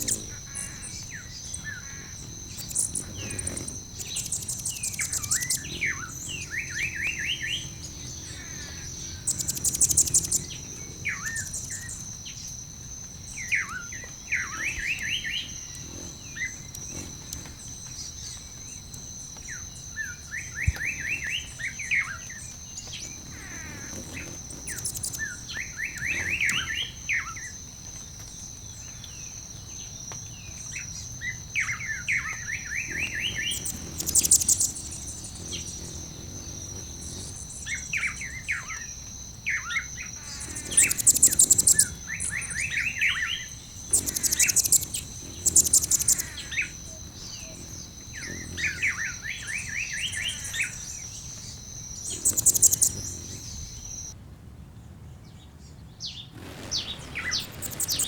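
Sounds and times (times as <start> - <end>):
rapid high bird trills: 0.0 - 12.1, 39.5 - 54.2
songbirds chirping: 0.0 - 54.2.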